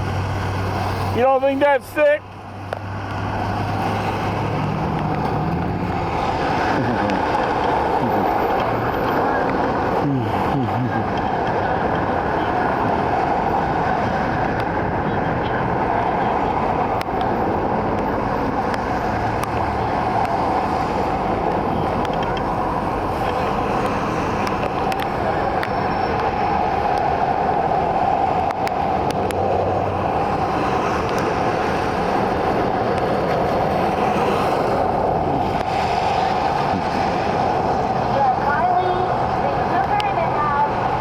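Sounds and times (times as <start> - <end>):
raindrop ticks: 18.7 - 22.6, 23.2 - 27.1, 30.8 - 31.3.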